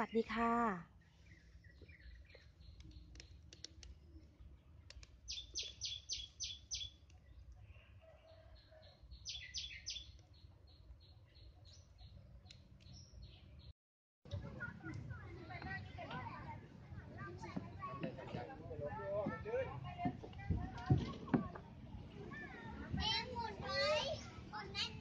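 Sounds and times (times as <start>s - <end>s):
small bird chirping: 1.0s - 13.7s.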